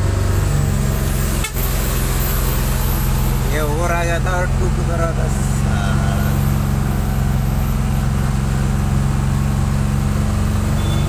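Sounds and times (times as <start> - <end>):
truck engine droning: 0.0 - 11.0.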